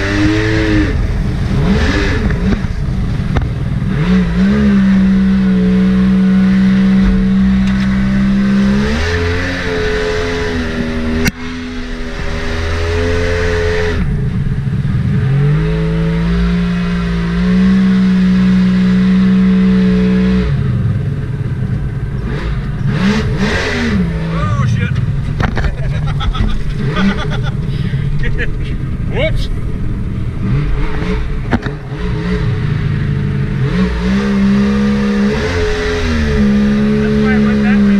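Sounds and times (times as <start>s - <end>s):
boat engine revving: 0.0s - 37.9s.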